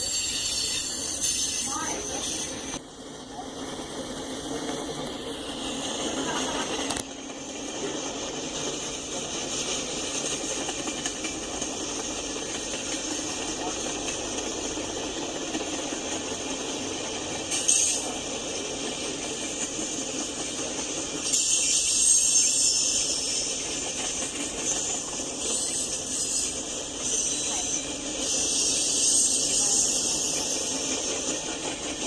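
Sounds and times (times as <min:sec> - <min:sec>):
freight train wheels rumbling on rail: 0:00.0 - 0:32.0.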